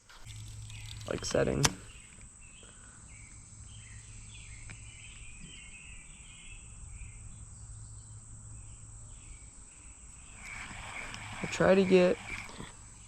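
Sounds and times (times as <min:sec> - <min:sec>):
bird chirping: 0:00.3 - 0:13.0
high-pitched insect drone: 0:06.9 - 0:13.0.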